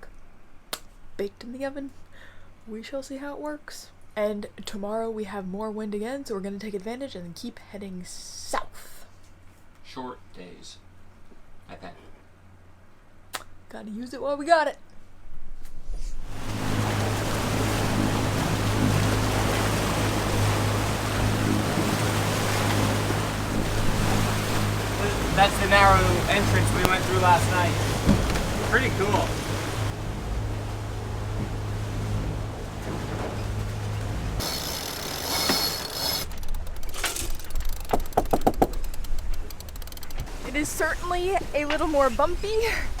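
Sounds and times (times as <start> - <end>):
wind: 0.0 - 43.0
boat engine humming: 16.2 - 43.0
water rushing: 16.3 - 43.0
mechanical ratchet clicking: 34.4 - 40.2.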